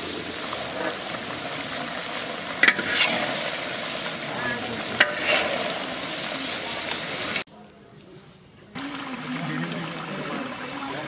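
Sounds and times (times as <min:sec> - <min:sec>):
meat sizzling in a pan: 0:00.0 - 0:07.5.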